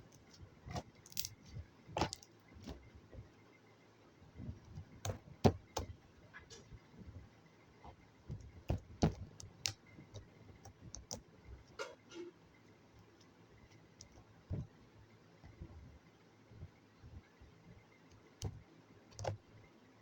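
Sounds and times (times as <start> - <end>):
slime clicking and popping: 0.7 - 1.4.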